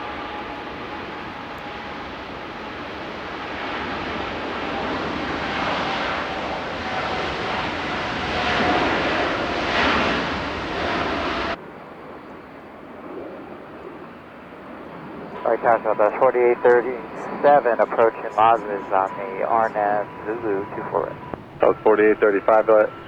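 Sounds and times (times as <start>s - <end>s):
jet engines roaring: 0.0s - 23.0s
faint steady whine: 15.0s - 23.0s.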